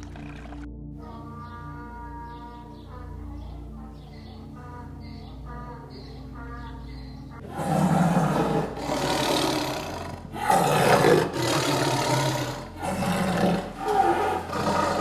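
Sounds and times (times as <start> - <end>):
large animal roaring: 7.4 - 15.0.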